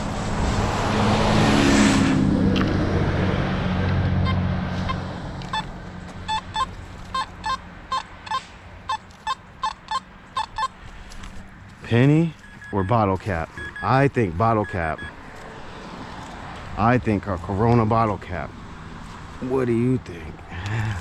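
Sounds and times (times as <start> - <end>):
vehicle driving past: 0.0 - 7.1
metal detector beeps: 4.2 - 10.8, 12.3 - 15.2.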